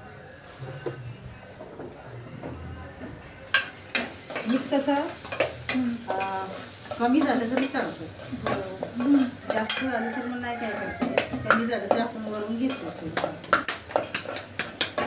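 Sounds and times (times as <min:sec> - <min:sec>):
steel utensils clinking and scraping: 0:03.5 - 0:10.0
frying sizzle: 0:03.5 - 0:15.0.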